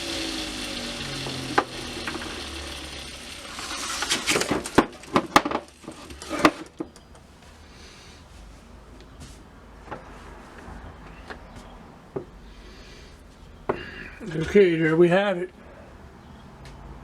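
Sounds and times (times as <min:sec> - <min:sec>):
steady hum: 0:00.0 - 0:05.2
knocks of hard objects handled: 0:04.1 - 0:07.2.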